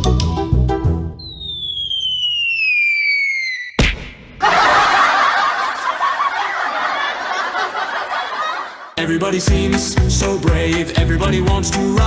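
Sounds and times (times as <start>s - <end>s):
falling whistle: 1.2s - 3.8s
laughter: 4.4s - 9.0s.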